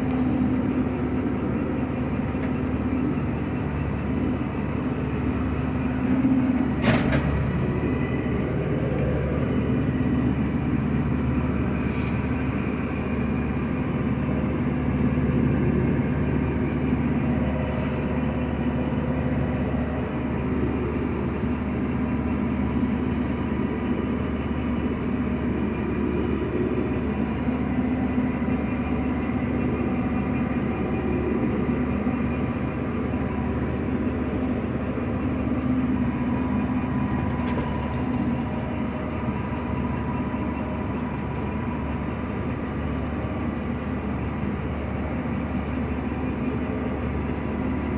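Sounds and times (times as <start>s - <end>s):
combine harvester engine drone: 0.0s - 47.9s
faint high whine: 11.6s - 13.8s.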